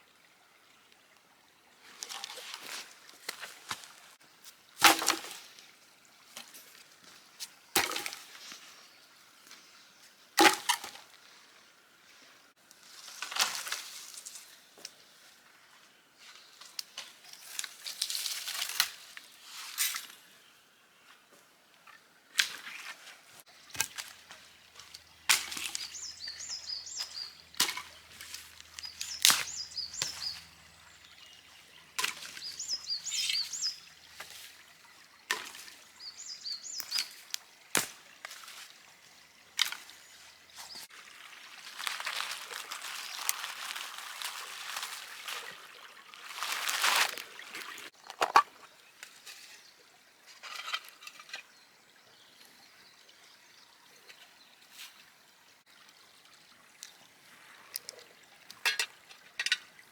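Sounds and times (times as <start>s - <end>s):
bird chirping: 24.9s - 33.9s, 36.0s - 37.1s.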